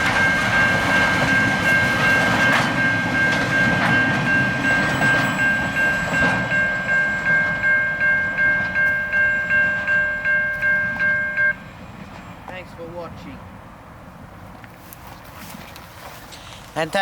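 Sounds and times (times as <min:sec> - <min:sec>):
level crossing warning bell: 0:00.0 - 0:11.8
wheels clicking over rail joints: 0:00.0 - 0:12.9
freight train rumbling past: 0:00.0 - 0:14.5.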